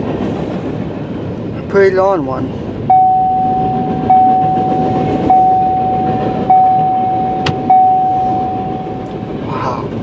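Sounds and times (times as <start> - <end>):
freight train cars rumbling: 0.0 - 10.0
railroad crossing bell ringing: 2.9 - 9.5.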